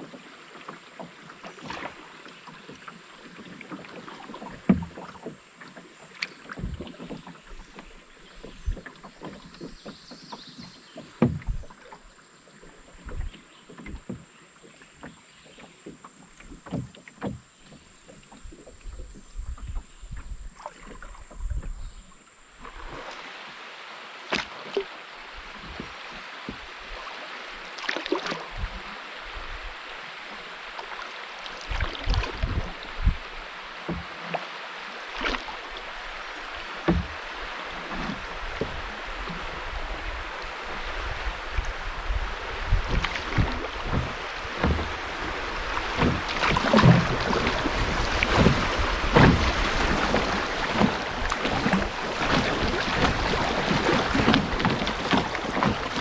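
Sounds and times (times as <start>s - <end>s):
paddle strokes splashing: 0.0s - 56.0s
rushing river water: 0.0s - 56.0s
knocks against canoe hull: 4.3s - 12.0s, 15.0s - 21.0s, 25.6s - 26.7s, 33.8s - 34.3s, 36.8s - 39.8s, 40.8s - 56.0s.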